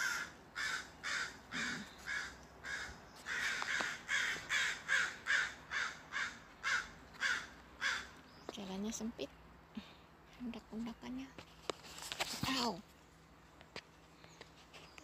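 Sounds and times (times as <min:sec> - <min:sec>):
crows cawing: 0:00.0 - 0:08.2.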